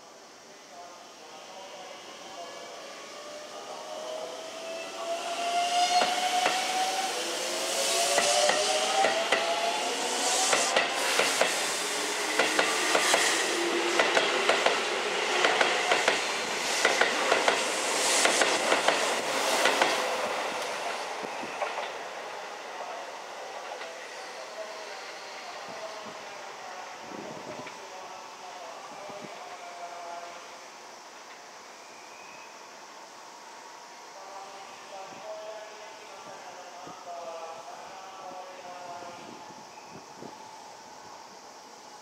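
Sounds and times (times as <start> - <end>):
train wheels clicking over rail joints: 6.0 - 6.7, 8.1 - 9.6, 10.5 - 11.6, 12.3 - 13.3, 14.0 - 20.0.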